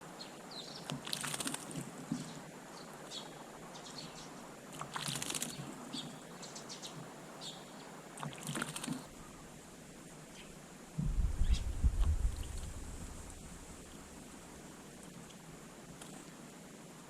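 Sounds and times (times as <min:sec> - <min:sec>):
wings fluttering: 0:00.8 - 0:02.4, 0:04.7 - 0:07.1, 0:08.2 - 0:09.2, 0:11.0 - 0:14.9
birds chirping: 0:02.1 - 0:09.4, 0:10.3 - 0:12.7.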